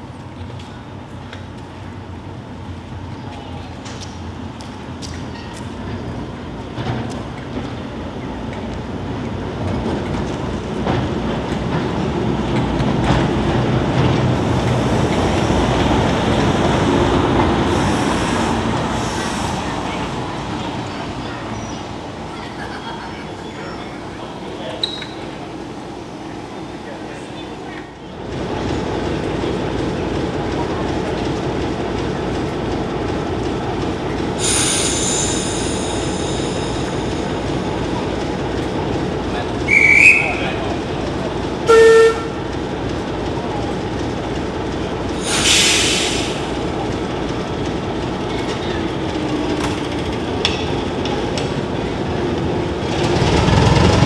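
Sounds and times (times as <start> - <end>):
train rumbling: 0.0 - 54.0
high-pitched wheel squeal: 39.7 - 40.6.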